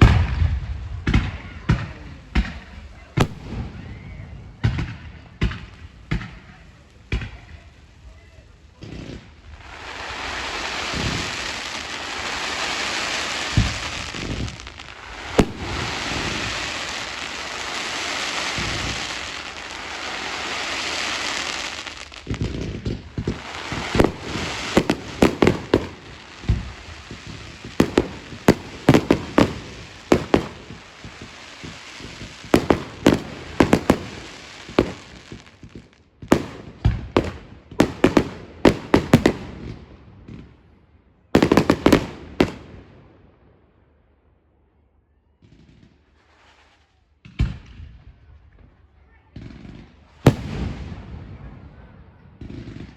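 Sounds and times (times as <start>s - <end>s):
fireworks sharp bangs: 0.0s - 7.6s, 8.7s - 40.7s, 41.4s - 43.1s, 49.4s - 52.9s
fireworks crackling hiss: 0.0s - 39.9s, 41.4s - 42.9s, 46.0s - 47.2s
fireworks thumps: 22.2s - 39.7s.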